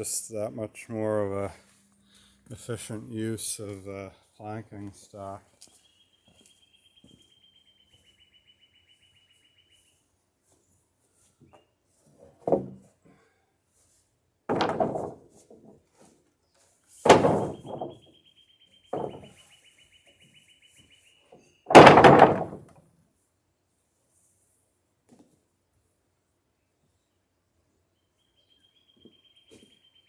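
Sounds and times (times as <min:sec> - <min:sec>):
wooden boards knocking: 0:12.4 - 0:12.8, 0:14.5 - 0:15.2, 0:17.0 - 0:18.0, 0:19.0 - 0:19.4, 0:21.7 - 0:22.8.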